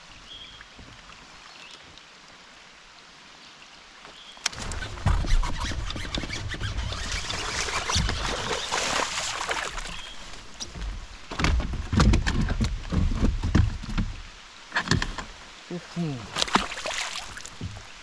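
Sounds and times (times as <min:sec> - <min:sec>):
knocks and clatter in kayak: 0:04.5 - 0:15.5, 0:16.3 - 0:18.0
splashing water: 0:04.5 - 0:18.0.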